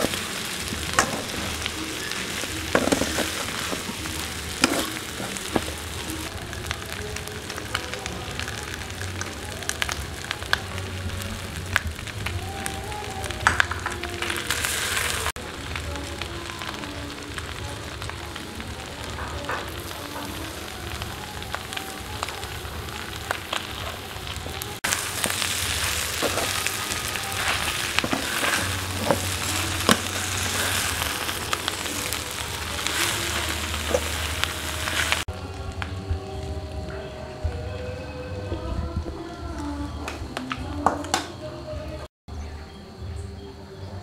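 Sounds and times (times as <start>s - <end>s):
metal ladle scraping a pan: 0.0s - 6.3s
meat sizzling in a wok: 0.0s - 36.4s.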